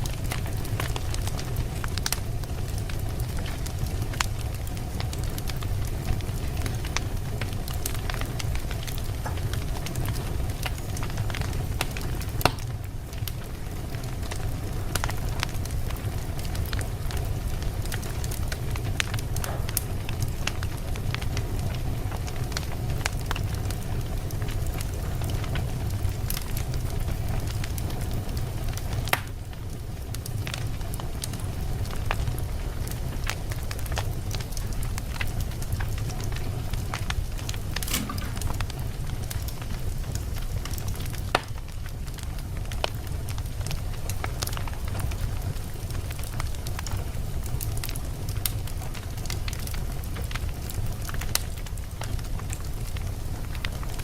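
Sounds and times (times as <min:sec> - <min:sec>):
flames rumbling: 0:00.0 - 0:54.0
logs crackling and popping: 0:00.0 - 0:54.0.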